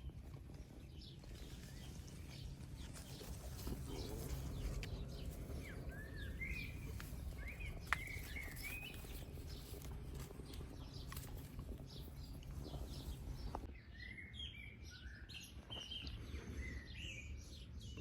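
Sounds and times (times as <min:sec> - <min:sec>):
steady low rumble: 0:00.0 - 0:13.7.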